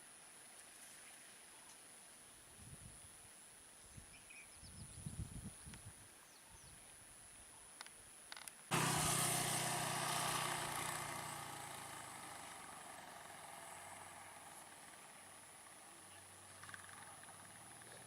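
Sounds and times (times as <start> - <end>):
faint bird chirps: 3.8 - 5.1, 6.1 - 7.8
vehicle engine pulling away: 8.7 - 18.0.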